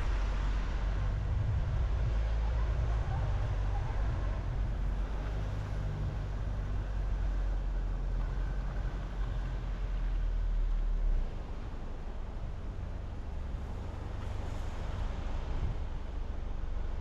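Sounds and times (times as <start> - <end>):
car engine and tyres rumbling: 0.0 - 17.0
road noise hiss: 0.0 - 17.0.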